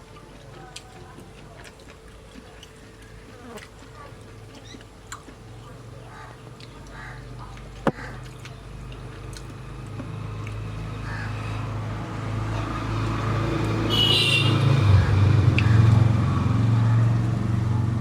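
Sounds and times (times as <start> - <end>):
low vehicle engine rumble: 4.0 - 18.0.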